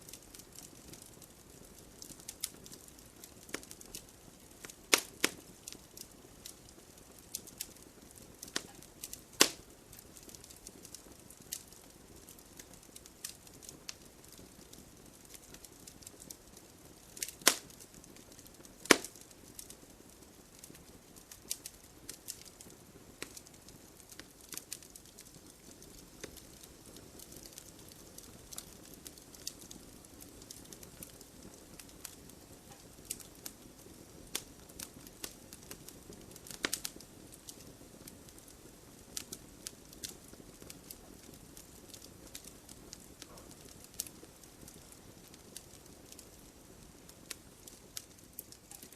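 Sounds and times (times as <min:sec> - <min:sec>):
fire hissing: 0:00.0 - 0:48.9
logs crackling in a fireplace: 0:00.0 - 0:48.9.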